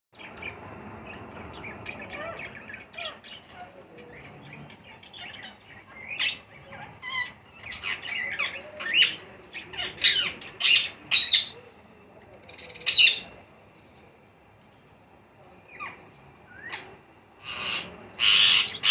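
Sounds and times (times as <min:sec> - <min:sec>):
baby parakeets squawking: 0:01.8 - 0:11.6, 0:12.5 - 0:13.4, 0:17.4 - 0:18.9.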